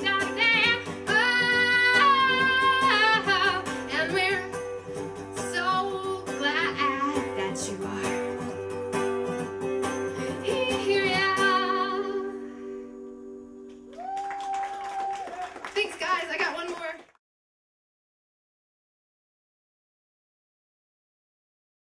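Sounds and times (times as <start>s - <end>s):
woman singing with vibrato: 0.0s - 4.6s, 5.4s - 8.5s, 10.2s - 12.9s
strummed acoustic guitar: 0.0s - 13.6s.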